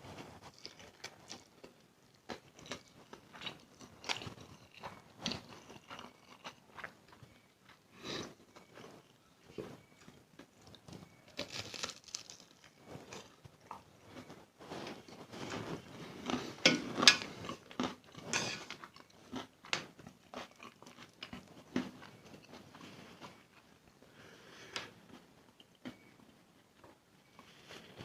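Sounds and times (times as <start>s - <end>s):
chewing and biting noodles: 2.3s - 7.4s.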